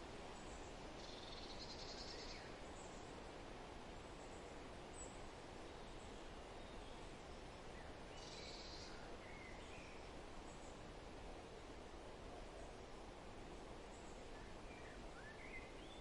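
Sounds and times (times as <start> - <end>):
faint outdoor background noise: 0.0 - 16.0
faint bird chirps: 0.4 - 3.2, 4.2 - 10.8, 13.9 - 16.0.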